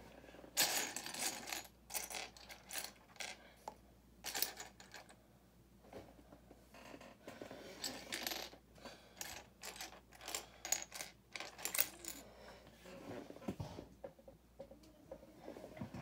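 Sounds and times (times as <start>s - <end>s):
plastic toy bricks clattering: 9.2s - 12.2s.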